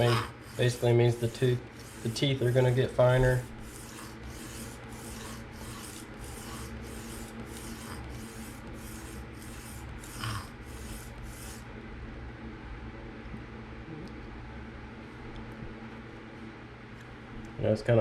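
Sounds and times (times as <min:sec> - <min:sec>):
knife rasping on sharpening plate: 0:00.0 - 0:11.6.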